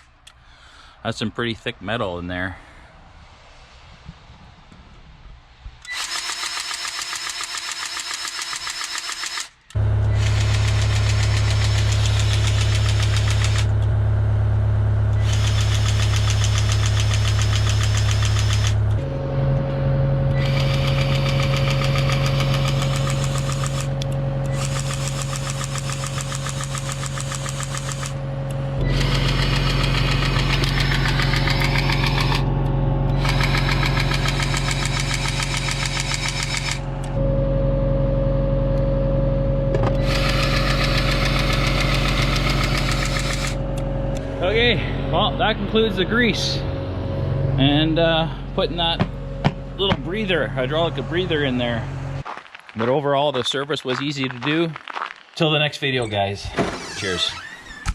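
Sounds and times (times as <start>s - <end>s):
diesel engine running: 9.4s - 54.6s.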